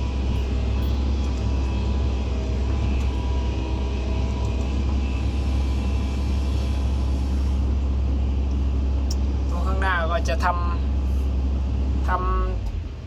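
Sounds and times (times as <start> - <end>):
excavator diesel engine rumble: 0.0 - 13.0.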